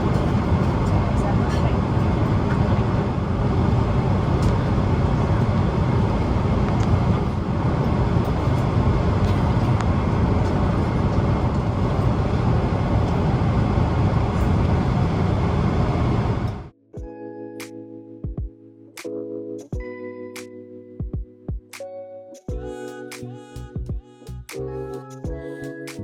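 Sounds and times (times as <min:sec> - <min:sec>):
jet engine cabin rumble: 0:00.0 - 0:16.7.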